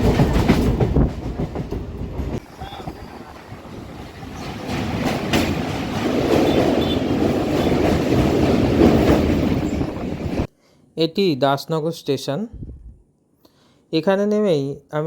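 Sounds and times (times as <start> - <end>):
train wheel and track rumble: 0.0 - 10.5
train wheels clacking: 0.0 - 10.5.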